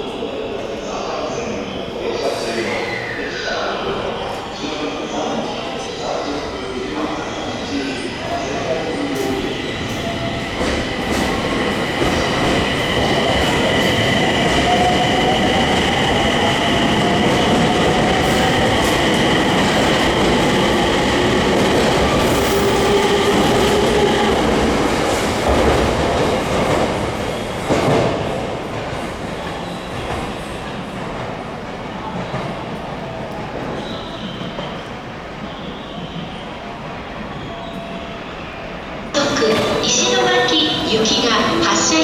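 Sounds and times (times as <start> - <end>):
train high-pitched squeal: 1.0 - 10.4, 33.6 - 40.9
train running noise: 7.0 - 34.7.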